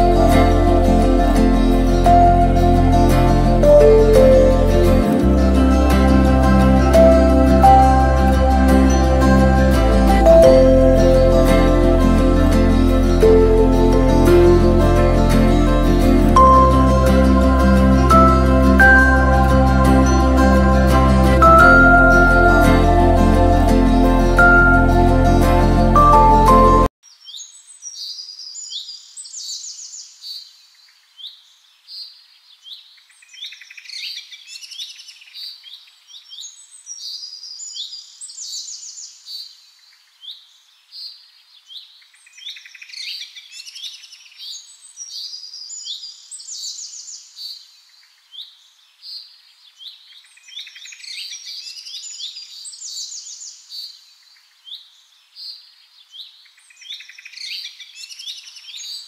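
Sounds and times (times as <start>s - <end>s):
small birds chirping and twittering: 27.0s - 59.0s.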